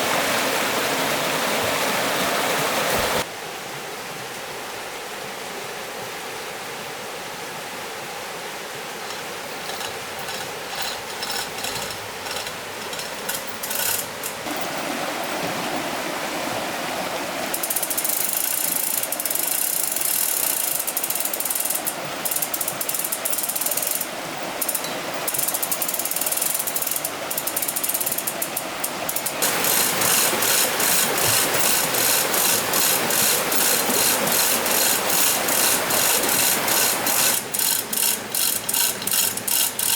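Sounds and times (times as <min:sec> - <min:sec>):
flowing water: 0:00.0 - 0:39.9
ratchet clicking: 0:09.1 - 0:14.5, 0:17.6 - 0:39.9.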